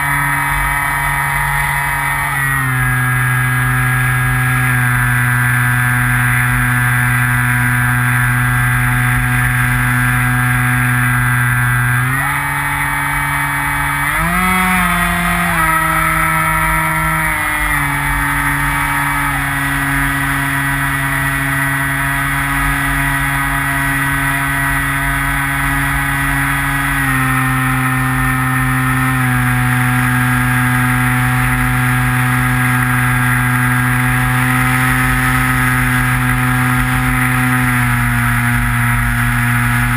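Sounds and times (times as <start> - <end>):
model plane electric motor whine: 0.0 - 39.9.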